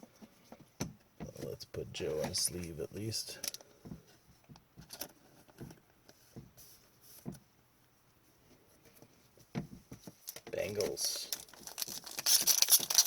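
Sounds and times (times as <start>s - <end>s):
cards rustling and tapping: 8.9s - 13.0s.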